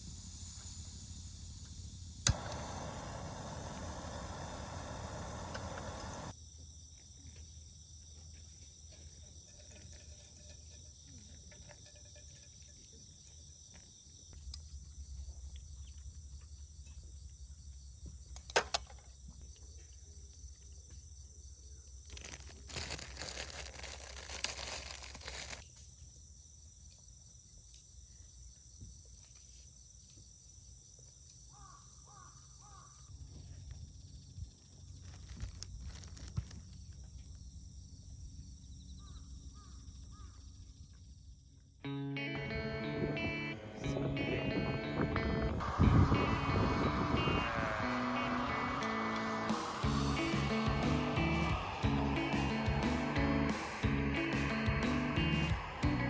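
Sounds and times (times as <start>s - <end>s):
crickets chirping: 0.0s - 41.9s, 45.6s - 56.0s
sharp clicks: 2.2s - 6.3s
rustling: 22.1s - 25.6s, 34.9s - 36.9s.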